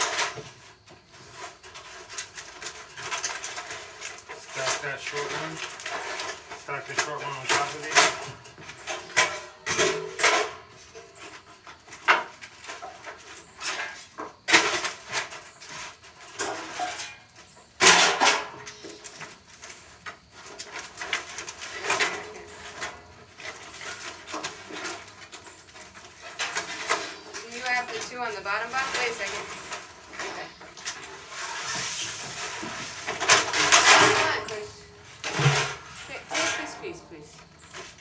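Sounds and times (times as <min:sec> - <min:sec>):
wooden boards knocking and scraping: 0:00.0 - 0:38.0.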